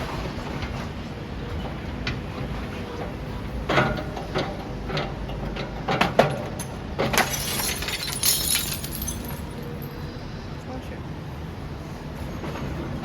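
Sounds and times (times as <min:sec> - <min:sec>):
rubble knocking and crunching: 0:05.6 - 0:09.8
debris rattling: 0:06.6 - 0:09.9.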